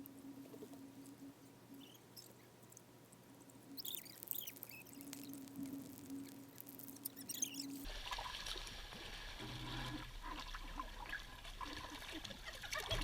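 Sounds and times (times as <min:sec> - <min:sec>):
faint steady hum: 0:00.0 - 0:13.0
pool water trickling and lapping: 0:00.4 - 0:13.0.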